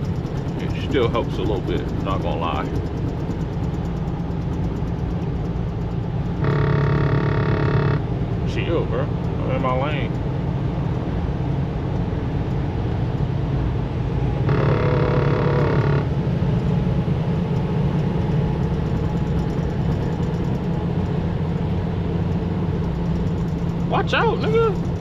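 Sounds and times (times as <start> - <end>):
truck engine and tyres drone: 0.0 - 25.0
vehicle horn: 6.4 - 8.1, 14.4 - 16.2.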